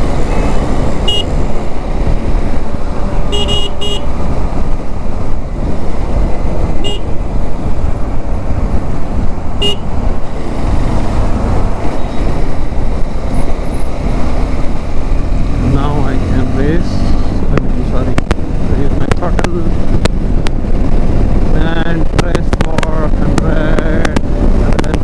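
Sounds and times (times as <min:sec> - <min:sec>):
wind rumble on microphone: 0:00.0 - 0:25.0
vehicle horn beeps: 0:00.3 - 0:01.4, 0:03.3 - 0:04.1, 0:06.8 - 0:07.1, 0:09.6 - 0:09.9.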